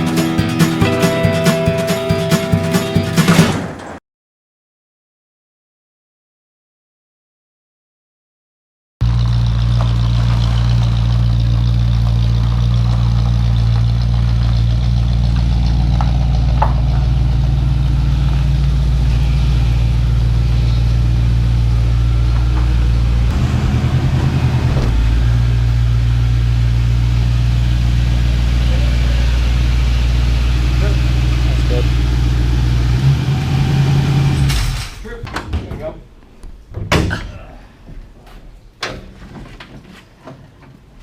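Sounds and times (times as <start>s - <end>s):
car engine running at low speed: 9.0s - 34.7s.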